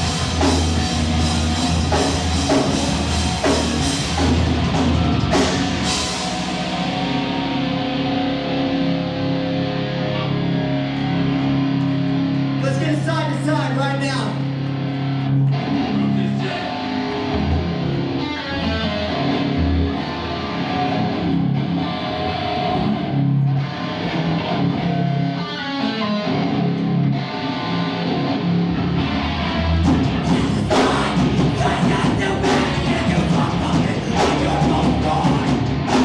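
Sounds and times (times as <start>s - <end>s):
drums and cymbals crashing: 0.0s - 7.1s, 29.9s - 36.0s
live rock band playing: 0.0s - 12.7s, 14.5s - 36.0s
electric guitar chords: 0.0s - 36.0s.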